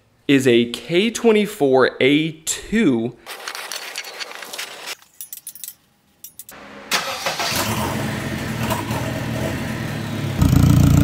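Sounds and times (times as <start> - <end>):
car engine starting and running: 6.6 - 11.0.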